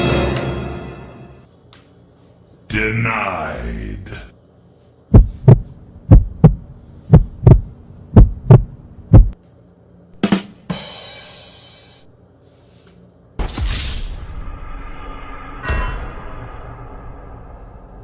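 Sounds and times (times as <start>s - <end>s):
heartbeat thumps: 5.1s - 9.4s.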